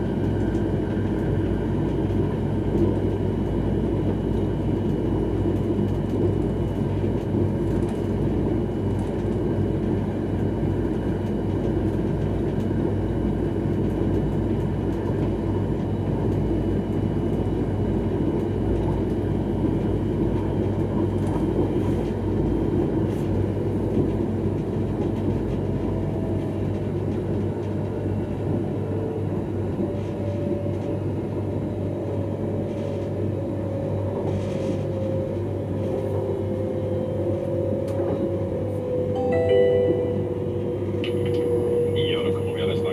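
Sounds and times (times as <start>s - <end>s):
train wheels rumbling on rail: 0.0s - 42.9s
steady tone: 39.1s - 41.2s.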